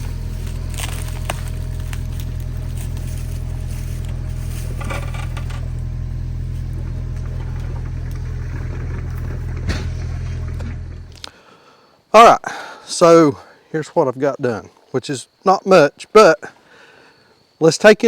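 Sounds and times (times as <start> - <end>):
sharp knocks and cracks: 0.0 - 3.4
excavator diesel engine running: 0.0 - 11.3.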